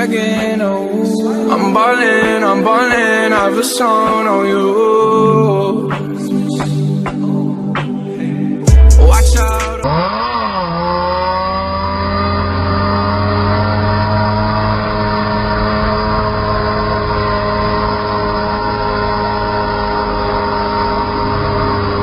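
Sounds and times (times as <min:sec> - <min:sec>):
motorcycle engine at high revs: 0:09.8 - 0:22.0.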